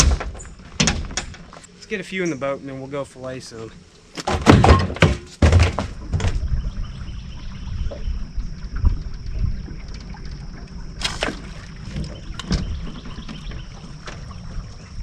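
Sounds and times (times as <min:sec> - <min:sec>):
knocks against hull: 0:04.2 - 0:06.5
boat engine low rumble: 0:06.4 - 0:15.0.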